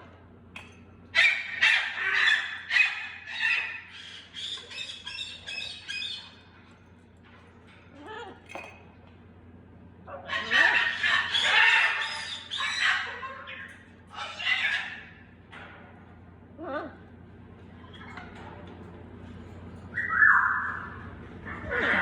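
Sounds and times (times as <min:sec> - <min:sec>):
baby parrots squawking: 0:01.2 - 0:06.3, 0:10.3 - 0:15.2.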